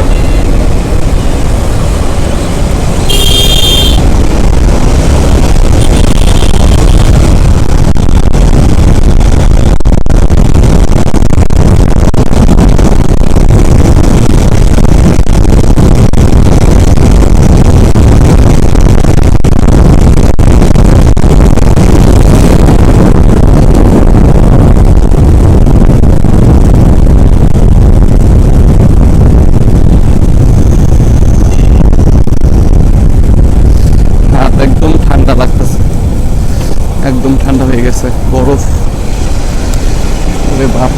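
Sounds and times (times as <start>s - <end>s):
motorcycle engine: 0.0s - 8.2s
road noise: 0.0s - 40.9s
wind blasting over microphone: 0.0s - 40.9s.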